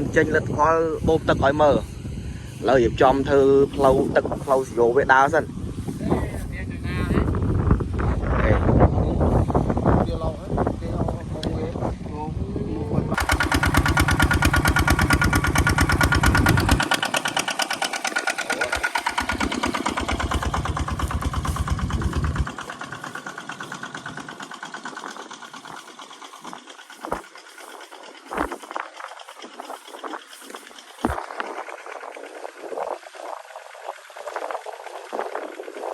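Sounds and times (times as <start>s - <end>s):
water pump engine running: 0.0s - 7.0s, 13.1s - 35.9s
light rattle: 13.2s - 32.4s.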